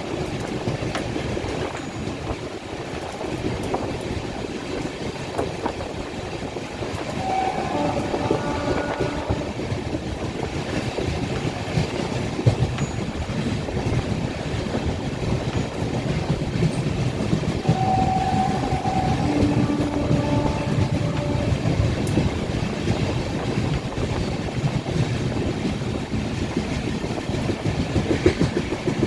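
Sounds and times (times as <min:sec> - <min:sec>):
brief steady tones: 0:07.1 - 0:09.5, 0:17.6 - 0:21.7.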